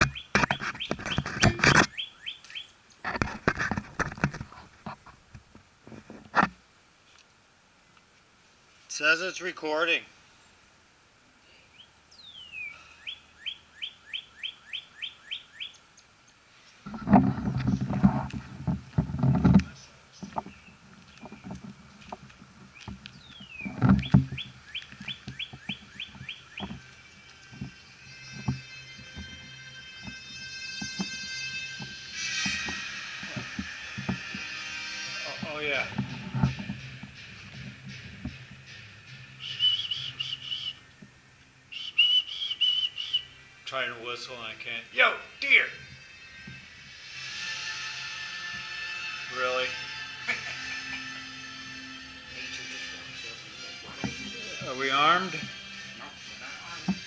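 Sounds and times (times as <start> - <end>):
rising bird chirps: 0.0 - 2.8, 11.6 - 16.8, 22.6 - 35.4, 38.7 - 43.7
sharp clicks and knocks: 0.0 - 6.6, 16.9 - 27.8
low thumps: 16.8 - 39.9.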